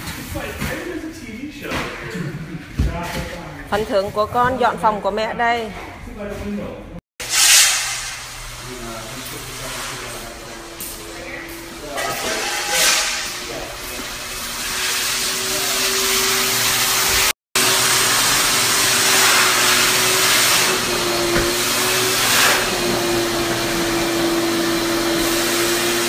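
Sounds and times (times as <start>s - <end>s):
rushing air hiss: 7.2s - 17.2s
electric blower motor humming: 8.2s - 26.0s.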